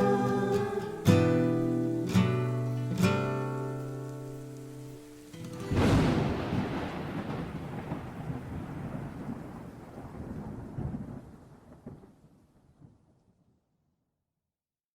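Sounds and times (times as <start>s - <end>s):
thunder crack and rumble: 5.6s - 13.4s.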